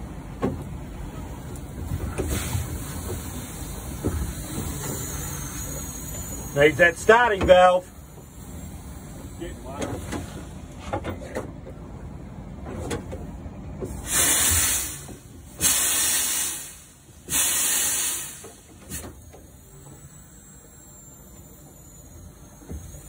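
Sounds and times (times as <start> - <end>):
steam engine hissing bursts: 2.2 - 10.4, 13.9 - 21.4.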